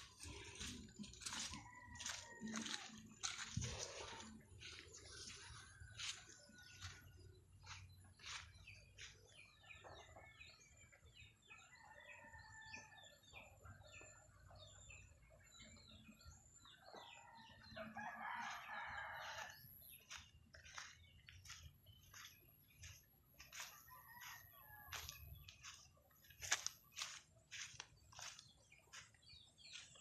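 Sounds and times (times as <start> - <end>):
rooster crowing: 17.8 - 19.6.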